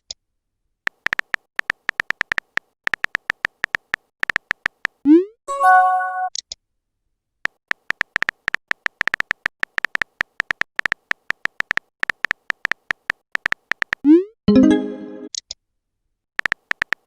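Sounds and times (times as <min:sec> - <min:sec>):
keyboard typing clicks: 0:00.9 - 0:05.0, 0:07.7 - 0:15.5, 0:16.4 - 0:17.0.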